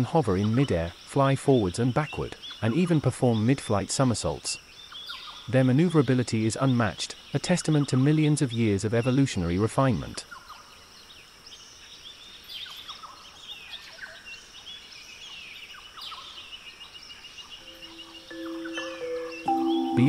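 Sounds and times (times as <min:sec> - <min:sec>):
faint background hiss: 0:00.0 - 0:20.0
small birds chirping: 0:00.0 - 0:20.0
low held music tone: 0:17.6 - 0:20.0.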